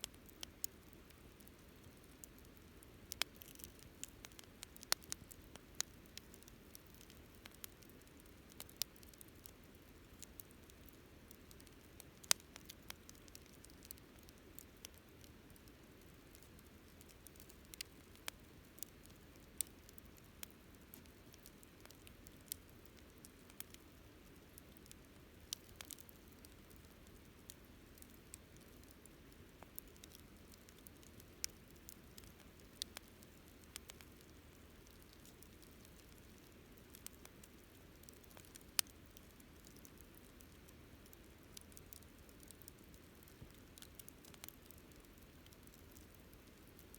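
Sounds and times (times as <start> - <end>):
campfire crackling: 0.0 - 46.9
faint low hiss: 0.0 - 46.9.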